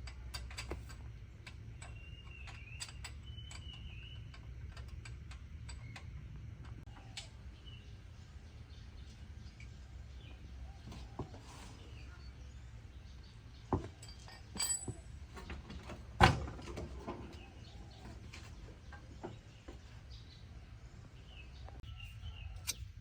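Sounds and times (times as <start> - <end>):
metallic clink: 14.0 - 15.1.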